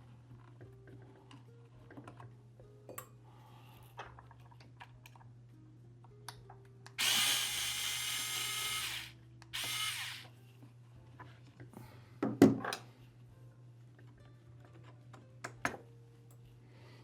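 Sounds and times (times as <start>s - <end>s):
electric screwdriver running: 7.0s - 10.3s.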